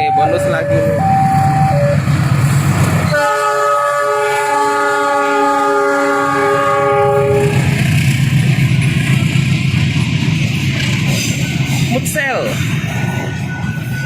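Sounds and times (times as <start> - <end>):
locomotive horn blast: 0.0 - 2.1, 3.1 - 7.8.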